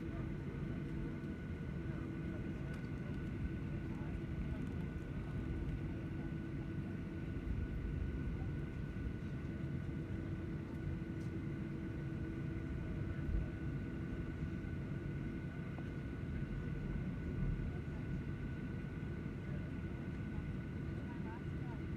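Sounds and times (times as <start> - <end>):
airliner engines rumbling: 0.0 - 21.9.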